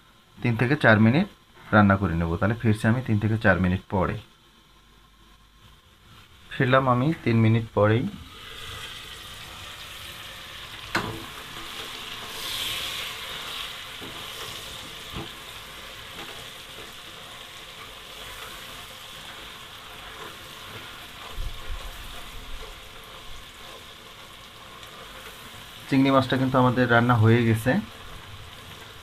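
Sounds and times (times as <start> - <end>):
curry bubbling and sizzling: 0.1 - 29.0
spatula stirring: 10.9 - 24.0.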